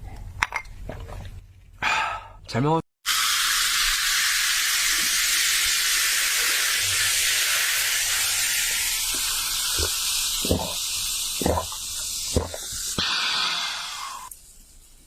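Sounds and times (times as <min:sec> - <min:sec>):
steady loud hiss: 0:03.1 - 0:15.0.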